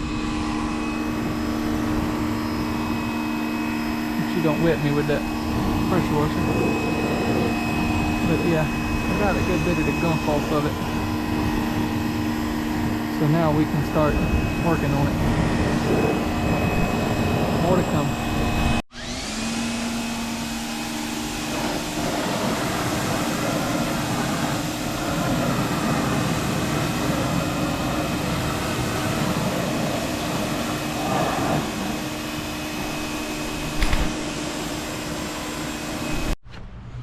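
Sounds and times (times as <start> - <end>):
pressure washer running: 0.0 - 36.4.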